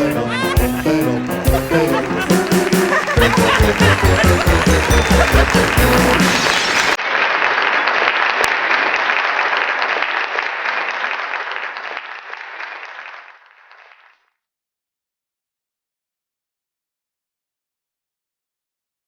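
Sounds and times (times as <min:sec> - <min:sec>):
audience applause: 0:00.0 - 0:14.1.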